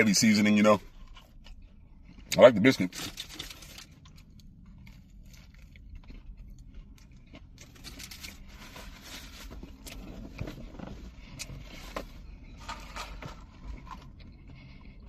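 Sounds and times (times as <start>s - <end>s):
low steady hum: 0.0s - 15.0s
food wrapping rustling: 2.8s - 4.0s, 7.6s - 14.2s.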